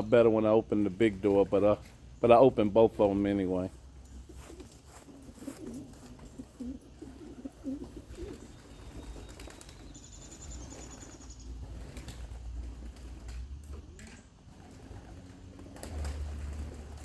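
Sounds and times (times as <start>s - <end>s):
pigeons cooing: 3.8s - 17.0s.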